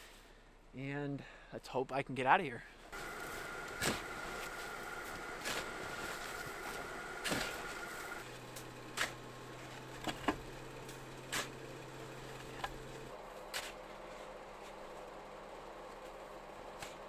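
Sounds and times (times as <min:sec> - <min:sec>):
shovel digging into snow: 0:03.0 - 0:09.2, 0:11.3 - 0:11.6.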